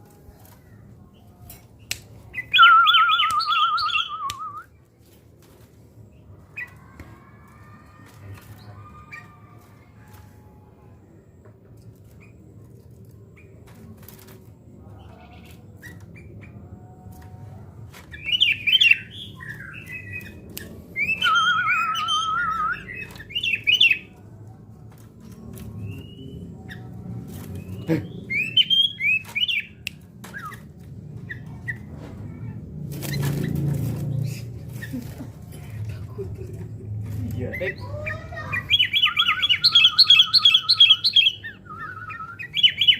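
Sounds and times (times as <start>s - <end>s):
bird wavering trill: 2.4s - 4.6s, 21.0s - 24.0s, 38.1s - 42.9s.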